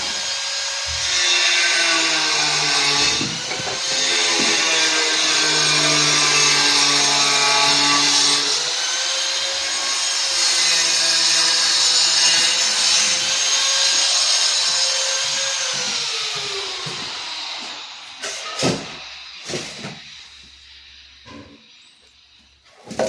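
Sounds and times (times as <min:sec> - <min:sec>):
power tool grinding: 0:00.0 - 0:22.2.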